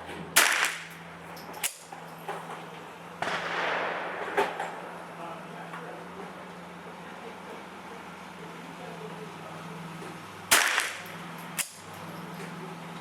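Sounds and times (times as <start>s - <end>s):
rifle shots cracking: 0.4s - 1.9s, 3.2s - 5.2s, 10.5s - 11.9s.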